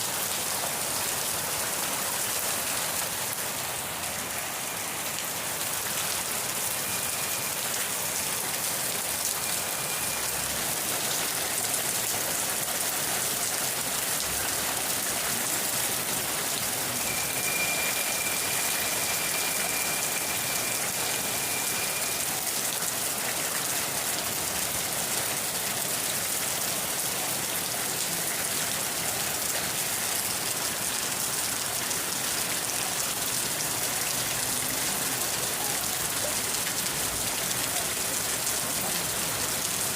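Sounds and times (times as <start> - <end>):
steady rain pattering: 0.0 - 39.9
faint high steady tone: 16.9 - 22.4.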